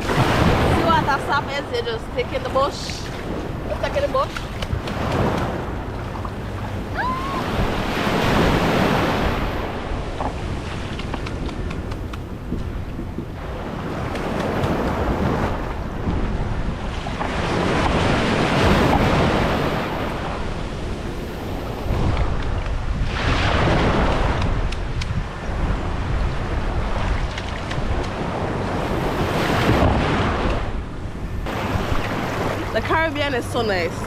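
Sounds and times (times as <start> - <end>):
sea waves breaking on shore: 0.0 - 34.0
wind buffeting microphone: 0.0 - 34.0.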